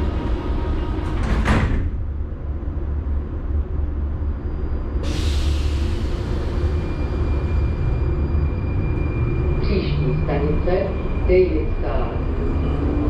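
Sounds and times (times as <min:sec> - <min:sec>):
train rumble: 0:00.0 - 0:13.0
sliding doors closing with thud: 0:00.8 - 0:02.2.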